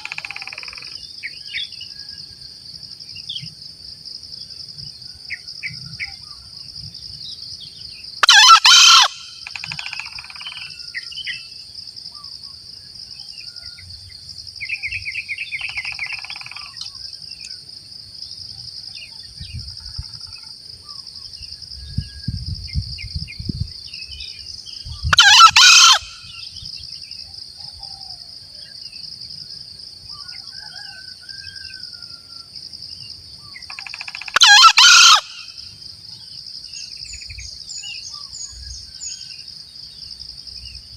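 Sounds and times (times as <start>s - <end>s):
high insect drone: 0.0s - 40.9s
junglefowl crowing: 8.2s - 10.8s, 25.1s - 26.4s, 30.2s - 32.5s, 33.7s - 35.6s.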